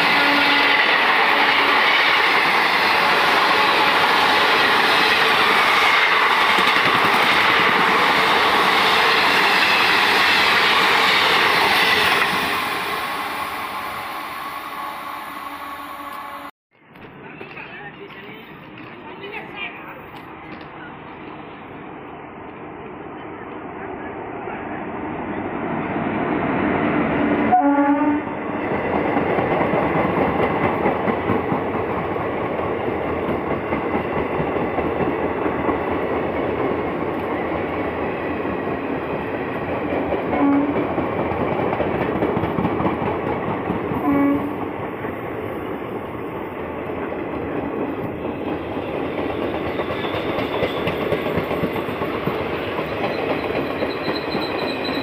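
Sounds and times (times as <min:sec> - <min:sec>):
train horn: 0:00.0 - 0:01.9, 0:14.6 - 0:16.5, 0:27.4 - 0:28.5, 0:40.3 - 0:40.9, 0:44.0 - 0:44.6
train coaches rumbling past: 0:00.0 - 0:55.0.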